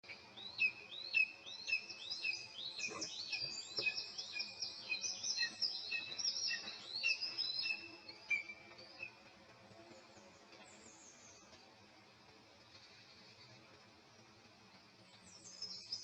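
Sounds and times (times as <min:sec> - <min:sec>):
nestlings begging chirps: 0:01.0 - 0:08.5.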